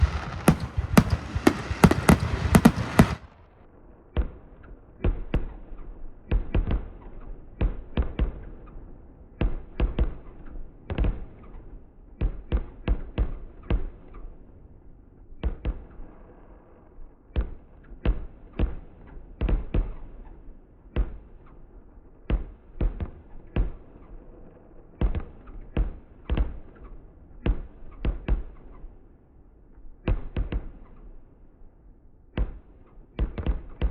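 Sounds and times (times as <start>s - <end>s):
fireworks bangs and crackle: 0.0s - 3.4s.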